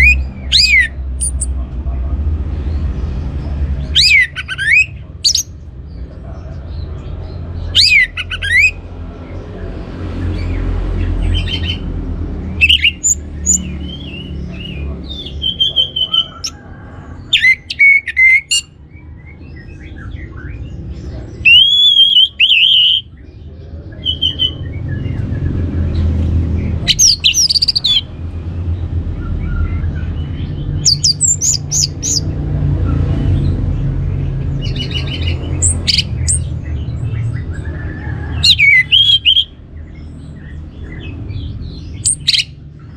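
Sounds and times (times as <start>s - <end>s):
thrush singing: 10.1s - 18.7s, 37.3s - 39.6s.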